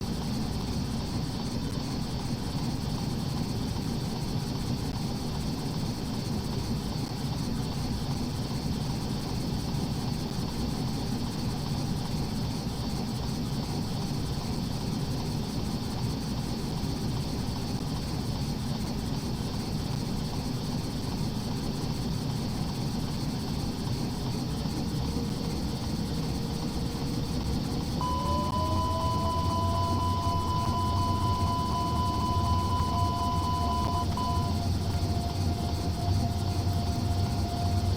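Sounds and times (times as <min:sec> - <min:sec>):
faint steady high tones: 0:22.6 - 0:37.9
airliner engines rumbling: 0:24.7 - 0:37.9
whine rising in pitch: 0:24.7 - 0:37.9.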